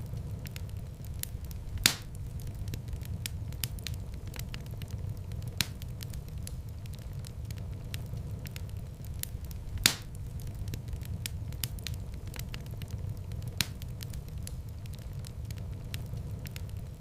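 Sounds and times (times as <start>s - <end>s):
fire rumbling and crackling: 0.0s - 17.0s
loud wood pop: 1.8s - 2.1s.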